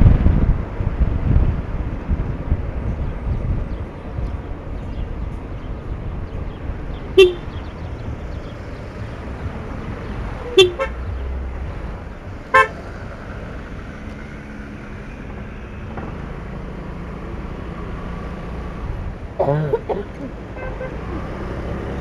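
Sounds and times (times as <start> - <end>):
vehicle rumble in traffic: 0.0 - 22.0
short vehicle horn toots: 7.2 - 7.6, 10.4 - 11.0, 12.5 - 12.8, 20.6 - 21.1.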